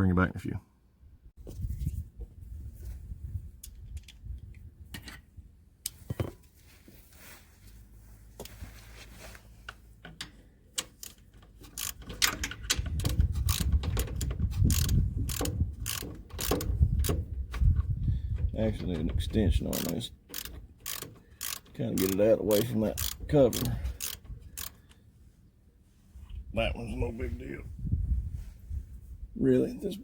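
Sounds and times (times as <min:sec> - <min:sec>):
socket ratchet clicking: 0:10.2 - 0:17.7, 0:19.6 - 0:25.0.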